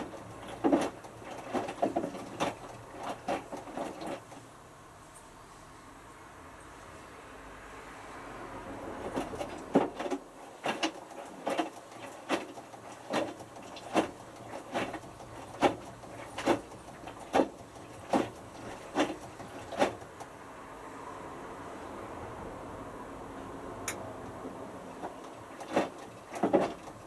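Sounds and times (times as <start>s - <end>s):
washing machine drum turning: 0.0s - 4.4s, 8.8s - 20.1s, 24.3s - 27.0s.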